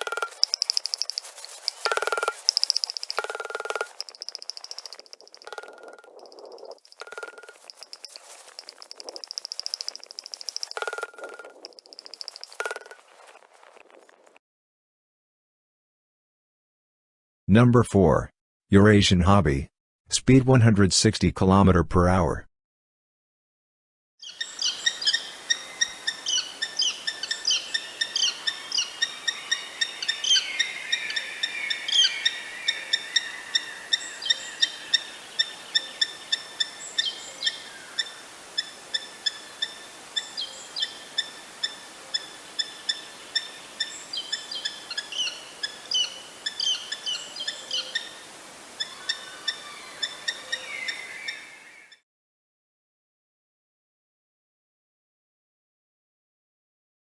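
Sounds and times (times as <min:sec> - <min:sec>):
falcon calling: 0:00.0 - 0:14.2, 0:24.2 - 0:51.8
faint outdoor hiss: 0:00.0 - 0:14.4, 0:24.2 - 0:51.9.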